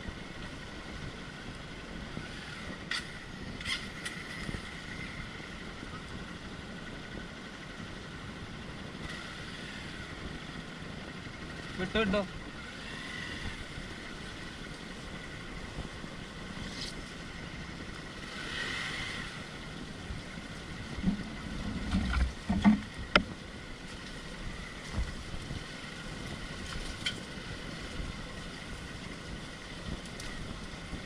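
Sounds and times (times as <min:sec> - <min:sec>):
off-road motorcycle rumble: 0:00.0 - 0:31.0
wind on microphone: 0:15.1 - 0:23.7
knocks and bumps: 0:21.0 - 0:23.3.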